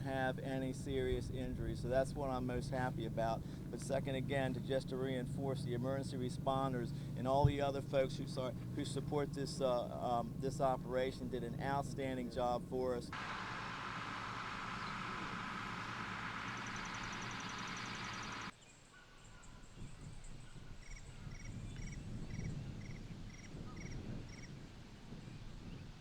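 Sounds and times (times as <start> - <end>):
low uneven rumble: 0.0 - 18.5
steady rushing noise: 0.0 - 18.5.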